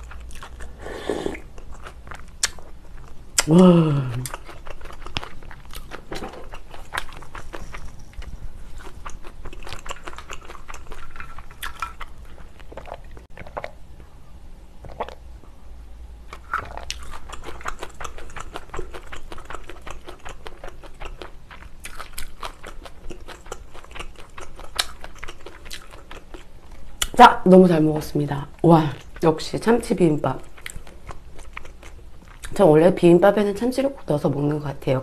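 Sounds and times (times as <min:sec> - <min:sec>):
chewing and mouth clicks: 0:00.0 - 0:03.5, 0:04.1 - 0:13.8, 0:14.8 - 0:15.2, 0:16.3 - 0:27.2, 0:30.3 - 0:32.6.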